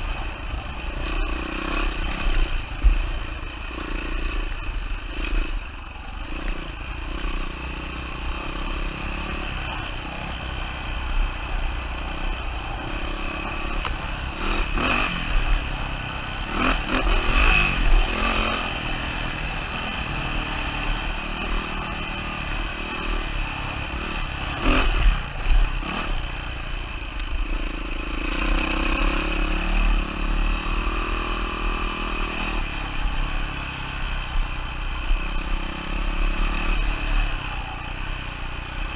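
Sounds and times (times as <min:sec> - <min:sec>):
dirt bike engine revving: 0:06.2 - 0:26.4, 0:27.4 - 0:33.7, 0:35.1 - 0:37.8.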